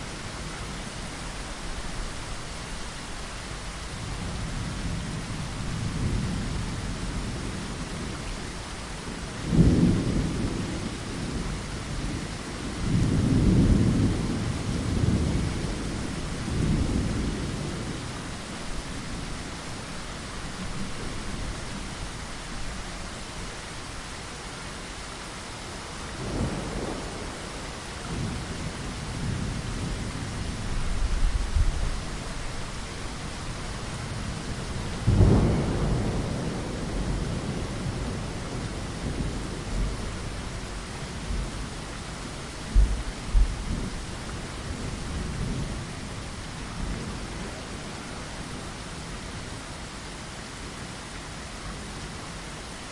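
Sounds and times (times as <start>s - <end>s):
rain against a window: 0.0s - 52.9s
rolling thunder: 9.4s - 18.1s, 26.2s - 32.3s, 33.8s - 41.7s, 42.7s - 47.8s.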